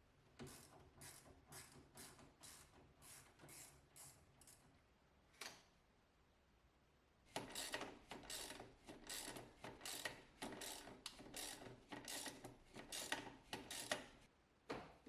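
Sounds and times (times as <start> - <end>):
hand tool rasping: 7.4 - 14.1.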